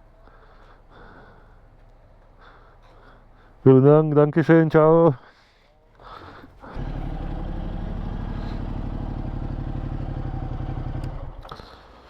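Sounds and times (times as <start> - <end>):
motorcycle engine idling: 6.4 - 12.0.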